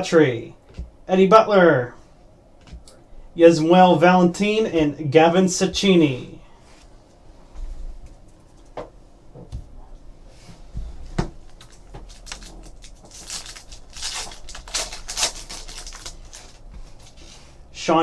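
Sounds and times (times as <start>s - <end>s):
cards and foil rustling: 11.4s - 17.3s.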